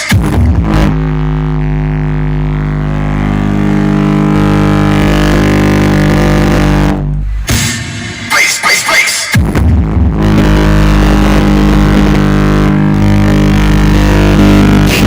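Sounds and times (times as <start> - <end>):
low electronic drone: 0.0 - 8.4, 9.2 - 15.0.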